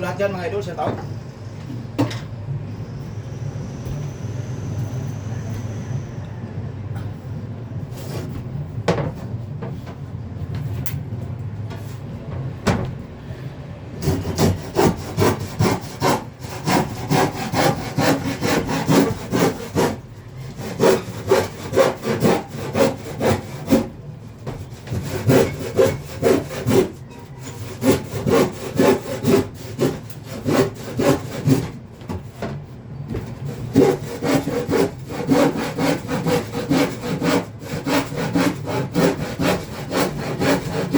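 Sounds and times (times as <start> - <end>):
hand saw cutting wood: 14.0 - 32.2, 33.2 - 40.9.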